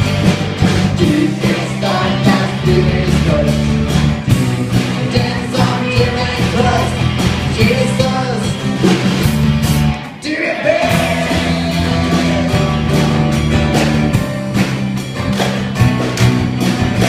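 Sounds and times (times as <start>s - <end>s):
electric guitar: 0.0s - 17.0s
rock band music: 0.0s - 17.0s
person singing: 1.0s - 8.6s.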